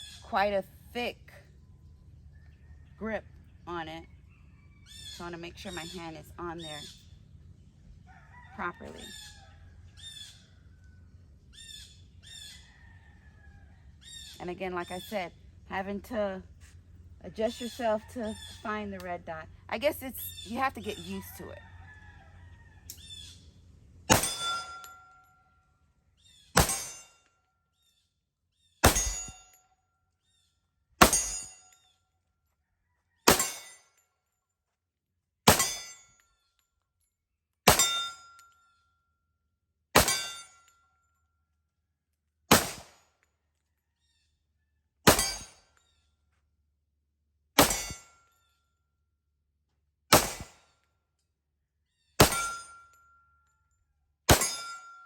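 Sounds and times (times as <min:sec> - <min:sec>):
pistol shots: 0:24.1 - 0:24.8, 0:26.6 - 0:27.0, 0:28.8 - 0:29.3, 0:33.3 - 0:33.6, 0:37.7 - 0:38.1, 0:40.0 - 0:40.3, 0:42.5 - 0:43.0, 0:45.1 - 0:45.5, 0:47.6 - 0:48.0, 0:50.1 - 0:50.6, 0:52.2 - 0:52.6
steel target ringing: 0:24.1 - 0:25.1, 0:26.6 - 0:27.1, 0:28.8 - 0:29.4, 0:31.0 - 0:31.6, 0:33.3 - 0:33.8, 0:35.5 - 0:36.0, 0:37.7 - 0:38.4, 0:40.0 - 0:40.6, 0:45.1 - 0:45.6, 0:47.6 - 0:48.1, 0:52.2 - 0:53.1, 0:54.3 - 0:55.0.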